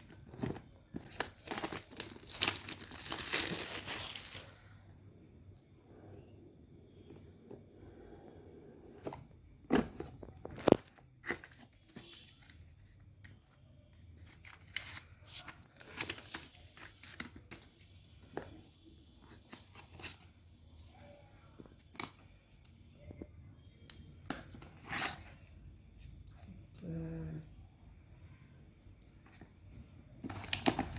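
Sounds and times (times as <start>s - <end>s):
wrap and cardboard rustling: 0.0s - 4.6s.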